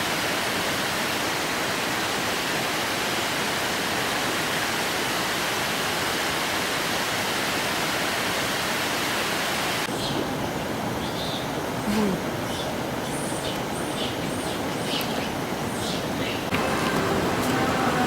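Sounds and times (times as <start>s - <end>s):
waterfall rushing: 0.0s - 9.9s, 16.5s - 18.0s.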